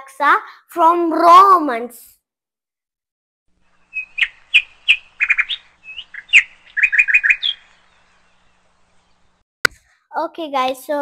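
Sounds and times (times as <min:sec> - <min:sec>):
small bird chirping: 0:03.6 - 0:09.4.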